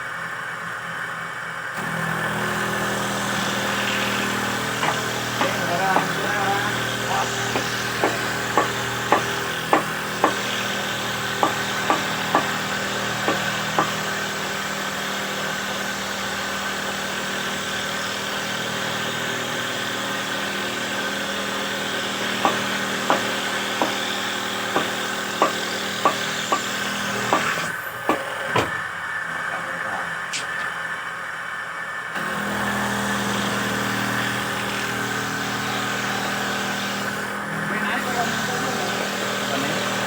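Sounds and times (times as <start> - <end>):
machine motor hum: 0.0 - 40.0
wood knocking against machine: 3.2 - 14.2, 22.1 - 28.9.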